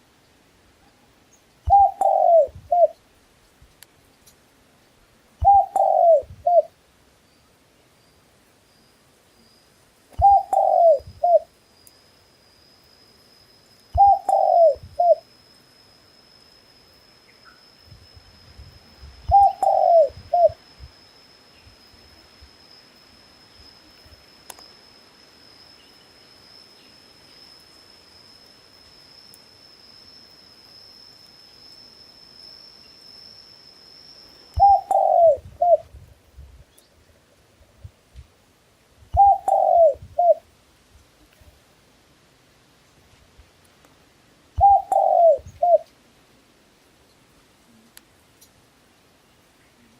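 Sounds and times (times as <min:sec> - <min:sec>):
dove cooing: 0:01.7 - 0:03.0, 0:05.4 - 0:06.7, 0:10.2 - 0:11.5, 0:14.0 - 0:15.2, 0:19.3 - 0:20.6, 0:34.6 - 0:35.9, 0:39.2 - 0:40.4, 0:44.6 - 0:45.9.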